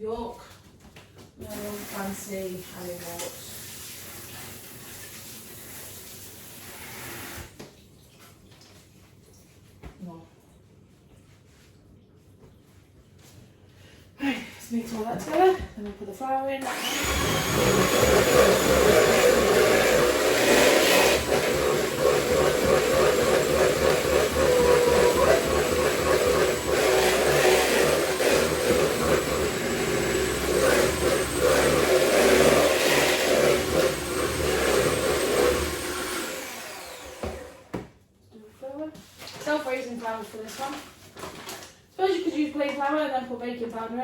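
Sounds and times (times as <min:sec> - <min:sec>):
electric mixer running: 0:16.6 - 0:37.8.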